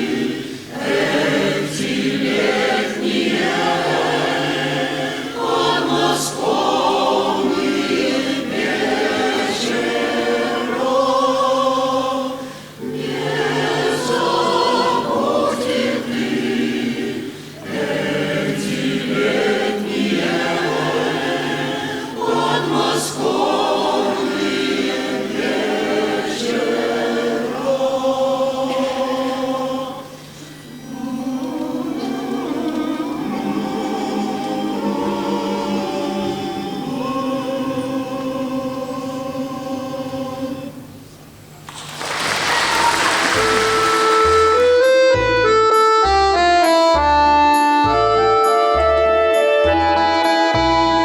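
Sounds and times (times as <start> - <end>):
choir singing: 0.0 - 41.0, 41.7 - 45.0.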